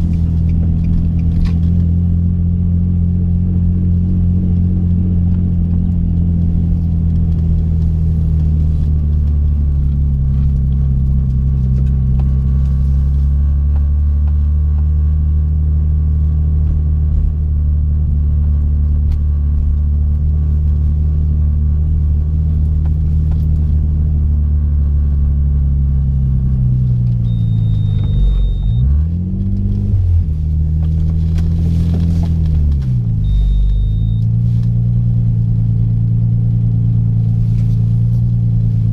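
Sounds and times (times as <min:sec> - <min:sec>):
car engine droning in cabin: 0:00.0 - 0:38.9
short high beep: 0:27.2 - 0:28.9, 0:33.2 - 0:34.4.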